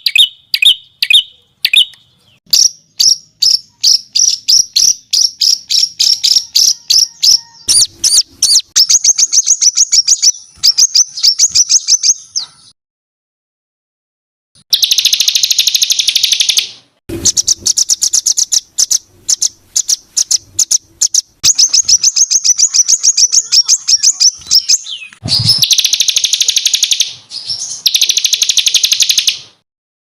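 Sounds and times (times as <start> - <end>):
songbird trilling and chirping: 0.0 - 12.7, 14.7 - 29.6.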